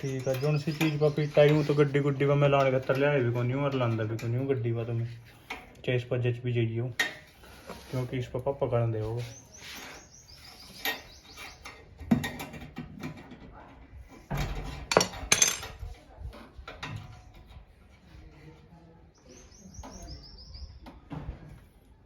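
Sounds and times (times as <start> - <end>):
bird chirping: 0.0 - 2.5, 9.1 - 11.9, 19.2 - 21.1
metal tools clinking and knocking: 14.3 - 15.9.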